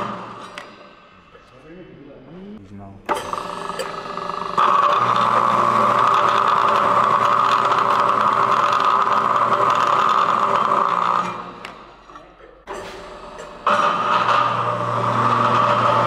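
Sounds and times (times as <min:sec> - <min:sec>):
metalworking machine humming: 0:00.0 - 0:01.4, 0:03.1 - 0:16.0.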